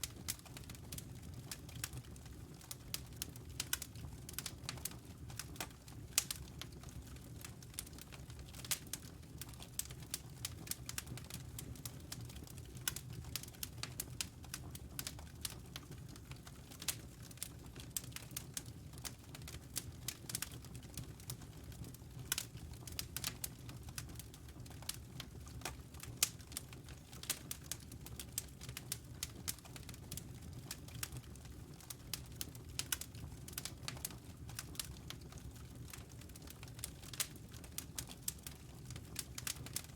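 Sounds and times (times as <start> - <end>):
low rumble of burning logs: 0.0 - 39.9
wood fire crackling: 0.0 - 39.9.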